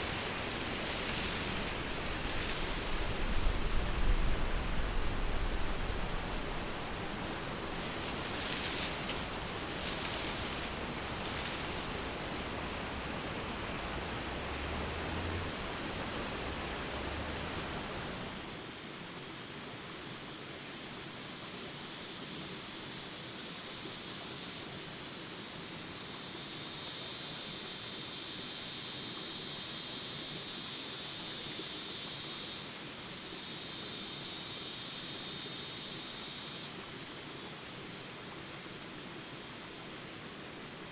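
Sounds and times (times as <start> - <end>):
low rumble: 0.0 - 12.8
crickets trilling: 0.0 - 18.7, 25.9 - 40.9
outdoor hiss: 0.0 - 18.7.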